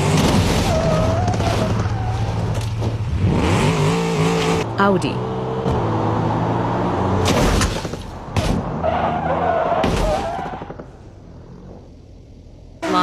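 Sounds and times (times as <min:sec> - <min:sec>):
tyre squeal: 0:00.6 - 0:02.6.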